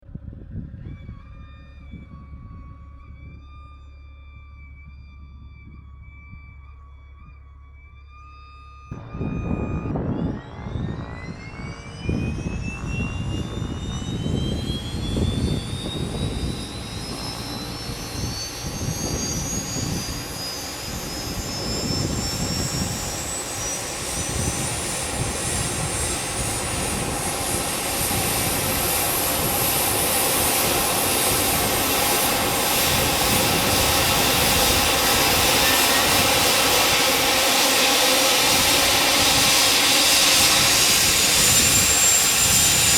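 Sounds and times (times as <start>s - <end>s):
turbine whine rising: 0.1s - 42.9s
low rumble: 8.9s - 42.9s.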